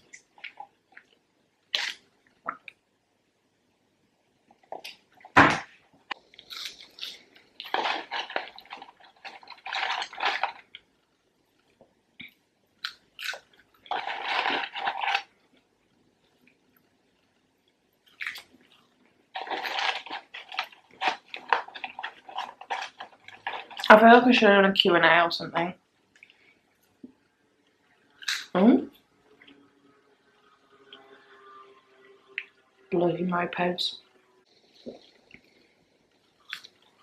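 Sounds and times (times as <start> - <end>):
person chewing fries: 0.0 - 2.8, 6.1 - 16.9, 17.6 - 23.9, 28.2 - 28.5, 34.5 - 37.0.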